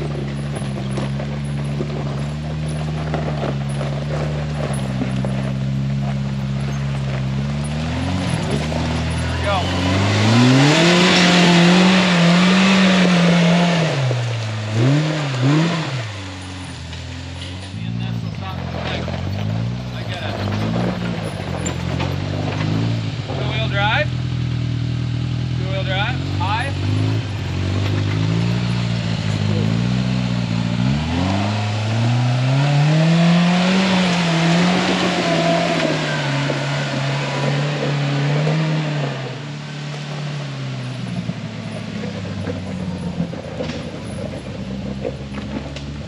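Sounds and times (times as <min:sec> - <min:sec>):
tyres on dirt: 0:00.0 - 0:46.0
engine revving hard: 0:07.4 - 0:16.7, 0:17.8 - 0:44.4.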